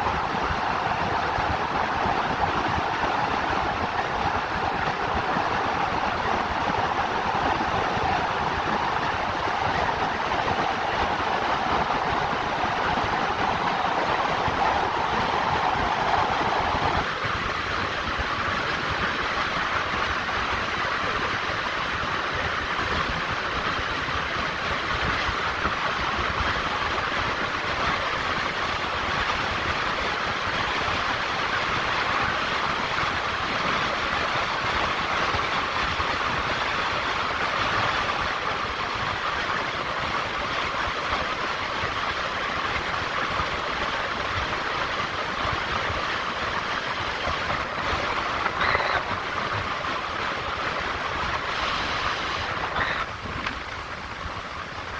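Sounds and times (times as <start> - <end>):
car road and wind noise: 0.0 - 54.9
car driving road noise: 42.8 - 54.9.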